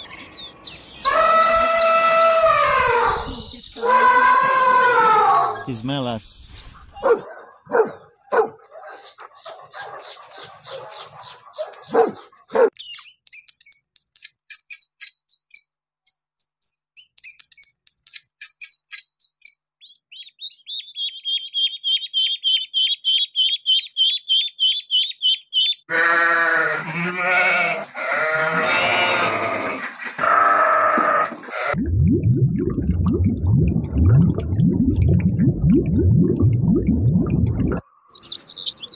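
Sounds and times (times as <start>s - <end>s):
dog barking: 6.9s - 12.8s
high thin chirps: 12.8s - 25.8s
sheep bleating: 25.9s - 31.8s.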